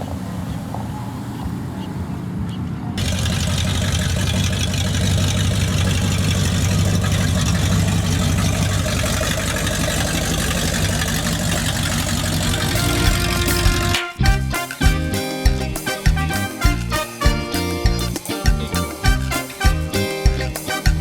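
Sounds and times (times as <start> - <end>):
car engines running: 0.0 - 14.4.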